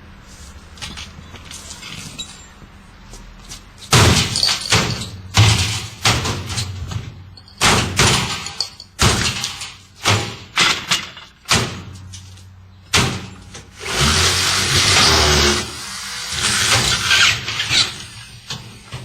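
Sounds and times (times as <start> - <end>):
washing machine thumps and bangs: 3.9 - 12.0.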